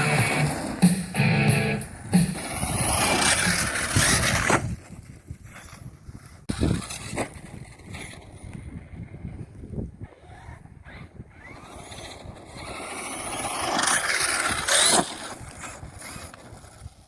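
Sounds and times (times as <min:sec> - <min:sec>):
rc truck throttle bursts: 0:00.0 - 0:04.7, 0:09.0 - 0:17.0
rc truck motor and tyres: 0:00.0 - 0:17.0.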